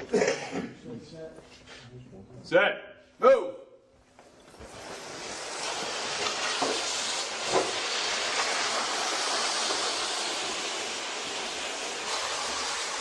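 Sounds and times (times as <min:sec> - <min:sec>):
steady hiss: 0:04.2 - 0:13.0.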